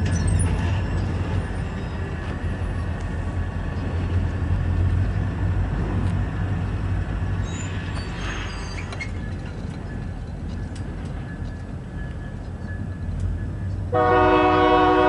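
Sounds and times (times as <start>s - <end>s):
locomotive engines rumbling: 0.0s - 15.0s
short high squeaks: 7.4s - 9.5s.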